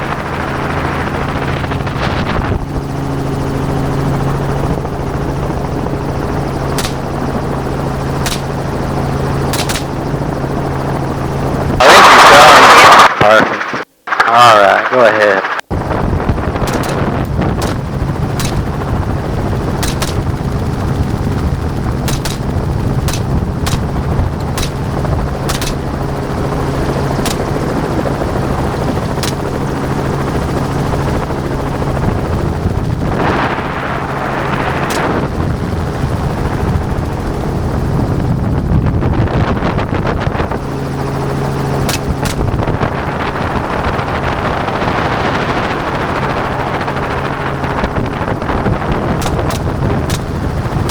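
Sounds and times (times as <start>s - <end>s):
helicopter hovering: 0.0s - 50.9s
rifle shots: 6.8s - 7.2s, 8.2s - 8.7s, 9.5s - 10.1s, 16.7s - 18.8s, 19.8s - 20.5s, 22.1s - 26.0s, 27.2s - 28.2s, 29.0s - 29.6s, 34.8s - 35.3s, 41.9s - 42.7s, 49.2s - 50.9s.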